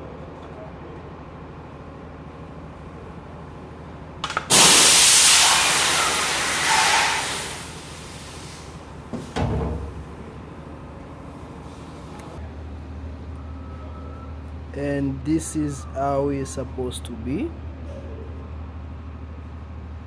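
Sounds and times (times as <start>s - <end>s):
escaping air hiss: 4.5s - 8.9s.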